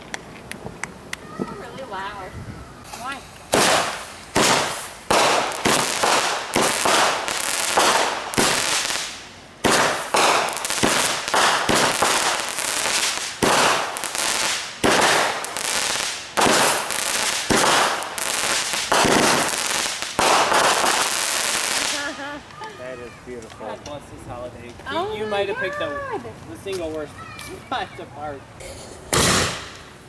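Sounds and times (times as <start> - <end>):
fireworks bangs: 2.8 - 24.3, 29.1 - 30.0.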